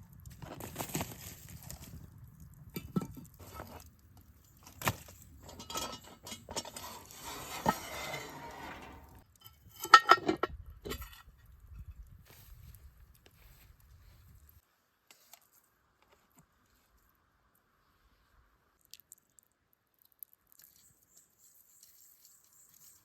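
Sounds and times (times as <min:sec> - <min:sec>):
cooking gear clinking and knocking: 0:04.6 - 0:11.2.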